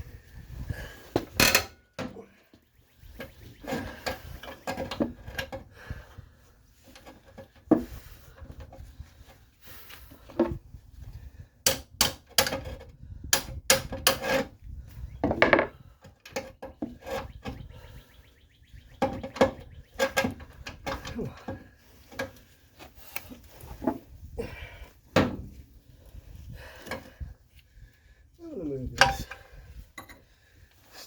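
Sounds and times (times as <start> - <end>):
hand tools clanking on metal: 1.3 - 2.3, 19.0 - 22.4, 29.0 - 30.2.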